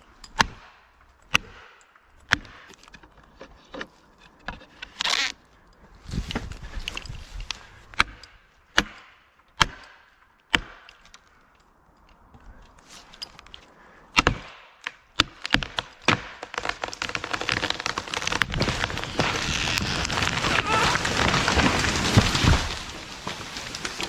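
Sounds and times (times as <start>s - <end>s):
wood and branches cracking: 0.4s - 9.0s, 10.5s - 24.0s
hammer striking felling wedges: 8.8s - 11.0s, 14.2s - 24.0s.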